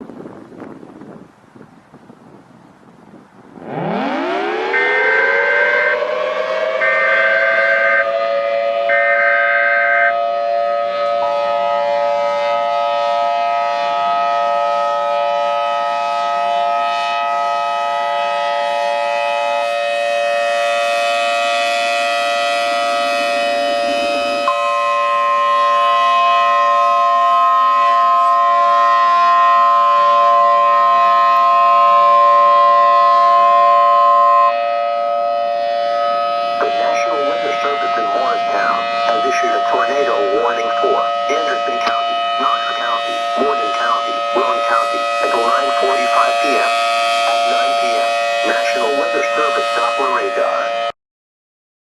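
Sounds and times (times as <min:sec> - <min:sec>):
warning siren: 0:02.2 - 0:51.0.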